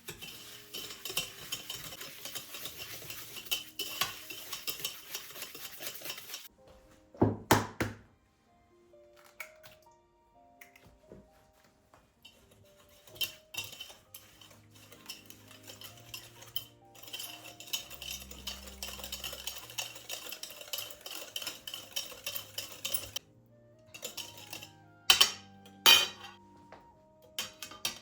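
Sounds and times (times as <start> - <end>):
stirring in a bowl: 0.0 - 6.5, 12.2 - 26.4
utensils clinking on dishes: 0.0 - 6.5, 12.2 - 26.5, 27.2 - 28.0
soft background music: 0.0 - 28.0.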